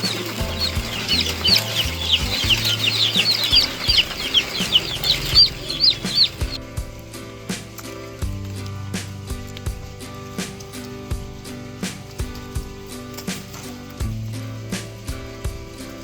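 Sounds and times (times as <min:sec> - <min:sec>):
chicks peeping: 0:00.0 - 0:06.8
background music with low notes: 0:00.0 - 0:16.0.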